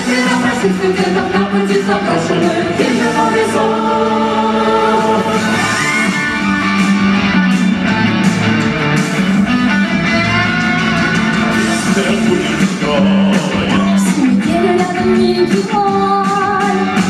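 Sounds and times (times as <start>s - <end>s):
live band playing instrumental: 5.0s - 17.0s.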